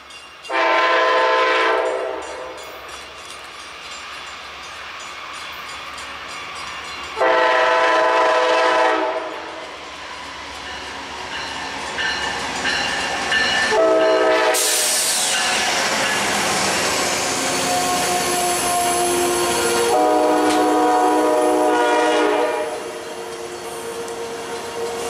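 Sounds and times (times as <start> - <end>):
train rushing past: 0.0 - 25.0
multi-note locomotive horn: 0.5 - 2.3, 7.2 - 9.5, 13.7 - 14.9, 17.8 - 23.1.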